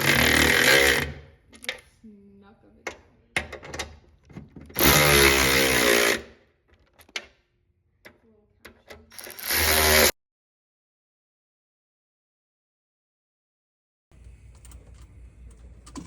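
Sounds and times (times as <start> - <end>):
power drill running: 0.0 - 1.2, 4.8 - 6.3, 9.2 - 10.2.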